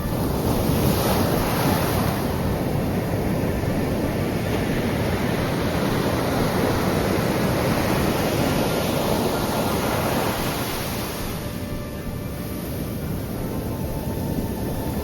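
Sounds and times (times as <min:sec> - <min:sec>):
sea waves breaking on shore: 0:00.0 - 0:15.0.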